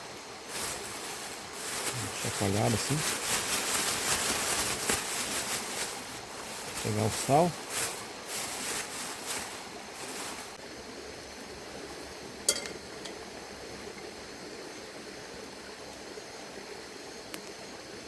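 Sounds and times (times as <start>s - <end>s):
steady background hiss: 0.0s - 18.0s
food rustling and shaking: 0.5s - 10.6s
sharp clink: 12.5s - 13.2s.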